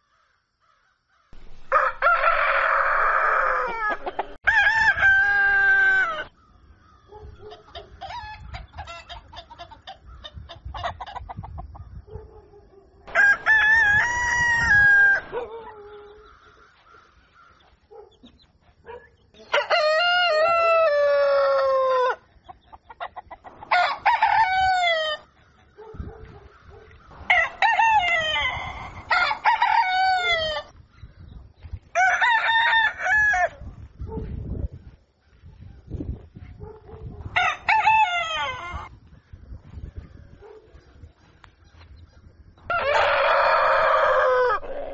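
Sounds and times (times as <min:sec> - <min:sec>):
roosters crowing: 0:01.4 - 0:11.1, 0:13.1 - 0:17.6, 0:19.4 - 0:22.3, 0:23.0 - 0:30.8, 0:31.9 - 0:33.6, 0:37.2 - 0:39.0, 0:42.6 - 0:44.9
chickens clucking: 0:02.6 - 0:04.4, 0:07.0 - 0:12.3, 0:21.1 - 0:29.4.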